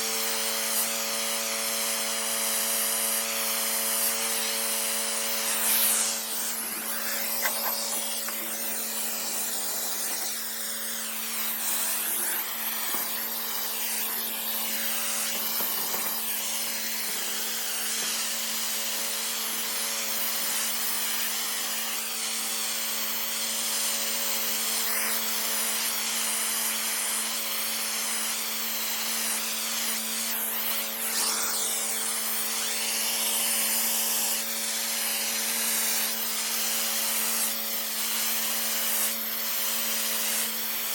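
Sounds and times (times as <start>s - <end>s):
pressure washer motor humming: 0.0s - 35.6s
high-pressure water spraying: 0.0s - 40.9s.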